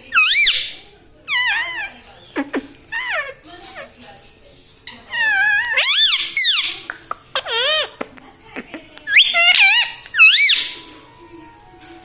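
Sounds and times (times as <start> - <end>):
parrot high wavering calls: 0.0 - 3.9, 5.1 - 8.0, 9.1 - 10.9.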